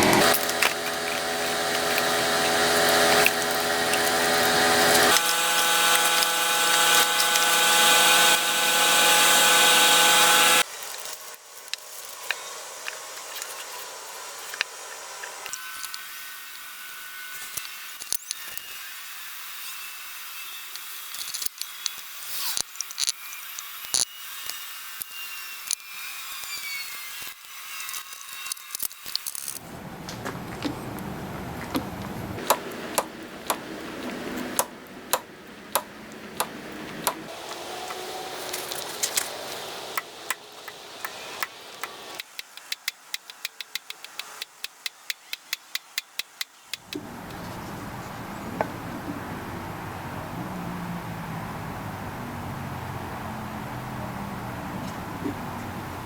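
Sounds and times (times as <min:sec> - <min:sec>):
steady background noise: 0:29.3 - 0:56.0
sharp hand tool clicks: 0:40.0 - 0:47.0.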